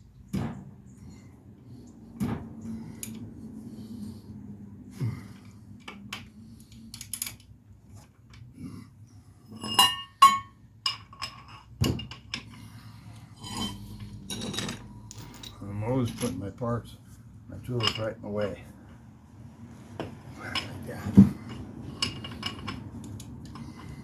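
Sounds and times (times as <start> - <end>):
metal tools clinking and knocking: 9.5 - 12.6, 13.4 - 16.5, 17.6 - 18.2, 20.4 - 24.0
ringing metallic clinks: 13.4 - 16.4.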